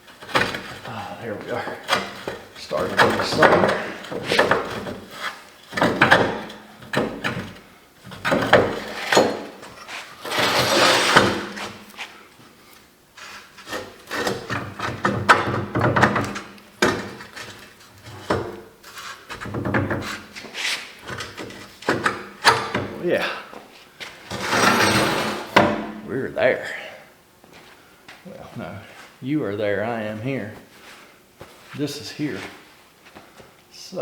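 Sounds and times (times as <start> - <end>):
metal parts clunking and knocking: 1.9 - 5.1, 5.7 - 7.6, 21.1 - 23.0, 24.3 - 26.0
metal scraping: 8.6 - 11.8, 24.2 - 26.2.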